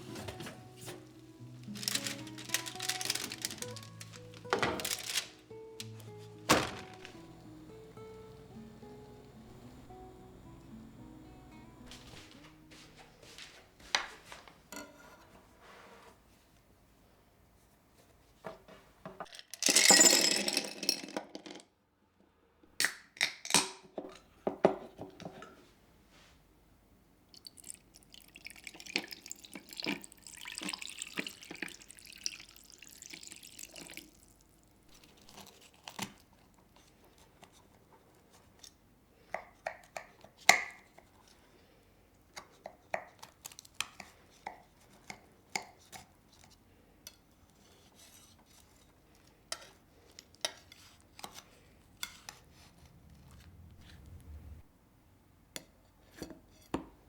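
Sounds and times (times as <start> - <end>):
kitchen items knocking and clicking: 0.0 - 7.3.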